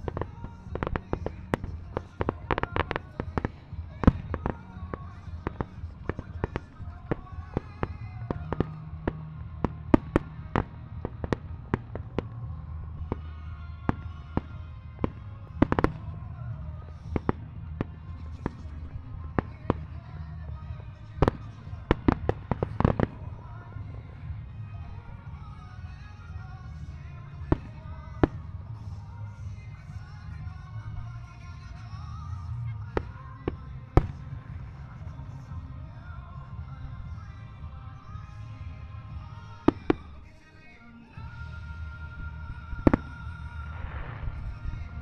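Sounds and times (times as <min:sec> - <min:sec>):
fireworks bursting: 0:00.0 - 0:45.0
music playing: 0:00.0 - 0:45.0.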